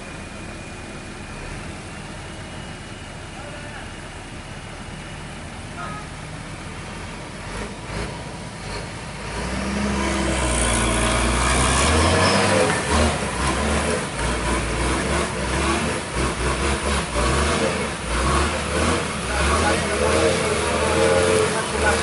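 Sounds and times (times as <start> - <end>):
truck engine under load: 0.0 - 22.0.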